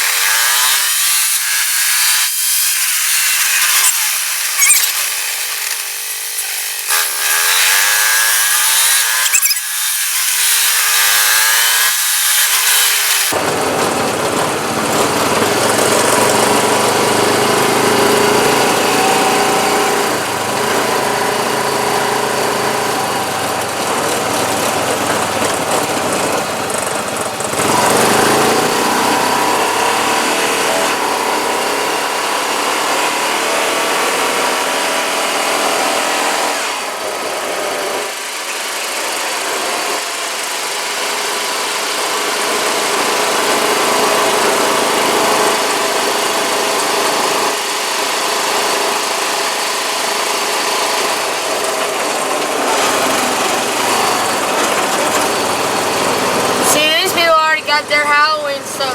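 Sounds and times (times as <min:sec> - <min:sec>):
tracked atv engine running: 0:13.3 - 0:38.0, 0:40.7 - 0:58.9.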